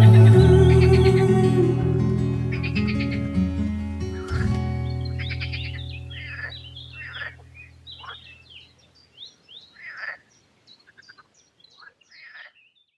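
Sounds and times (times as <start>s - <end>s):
songbirds singing and chirping: 0.0s - 3.4s, 4.0s - 13.0s
background music: 0.0s - 7.4s.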